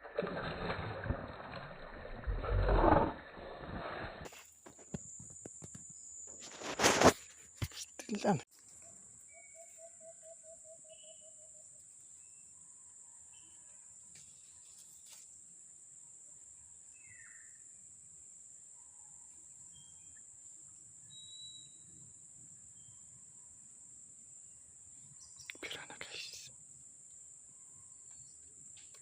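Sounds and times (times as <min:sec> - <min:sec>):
short bird chirps: 0:09.3 - 0:11.5, 0:21.1 - 0:21.9.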